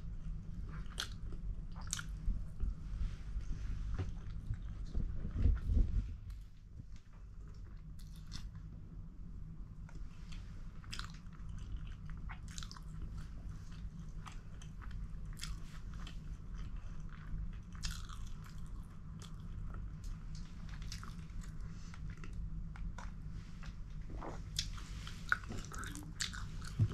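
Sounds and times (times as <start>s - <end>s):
steady low hum: 0.0s - 26.9s
person chewing food: 0.3s - 2.3s, 10.8s - 26.9s.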